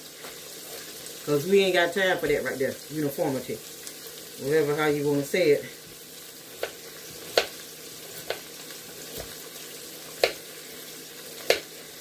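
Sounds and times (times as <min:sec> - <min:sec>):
faint steady hiss: 0:00.0 - 0:12.0
knife chopping on cutting board: 0:06.6 - 0:07.6, 0:08.2 - 0:08.5, 0:09.1 - 0:09.4, 0:10.2 - 0:10.4, 0:11.4 - 0:11.7.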